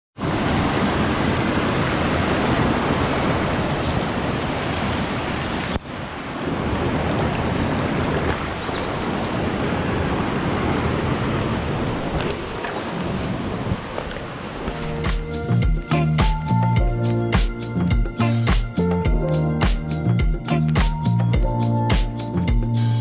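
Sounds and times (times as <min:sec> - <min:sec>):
waterfall stream rushing: 0:00.2 - 0:15.3.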